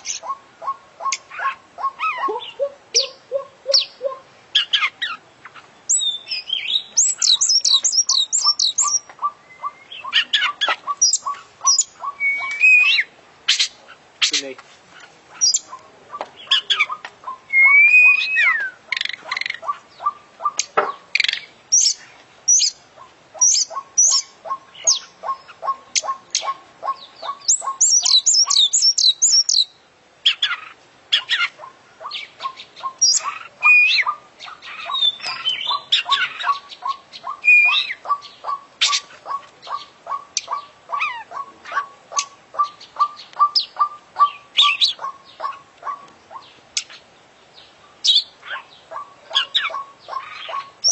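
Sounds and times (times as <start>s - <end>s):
bird singing varied song: 0.0s - 50.9s.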